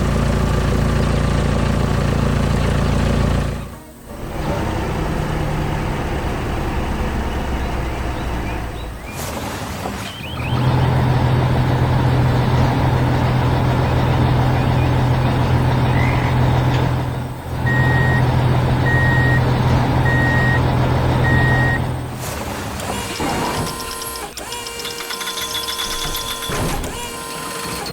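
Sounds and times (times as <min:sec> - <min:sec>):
heavy vehicle engine running: 0:00.0 - 0:27.9
reversing alarm beeping: 0:17.6 - 0:21.9, 0:22.9 - 0:27.4.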